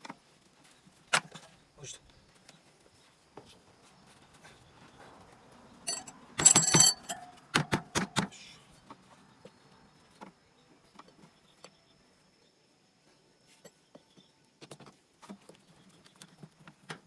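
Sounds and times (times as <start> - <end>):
metal clattering and ringing: 5.9 - 7.4.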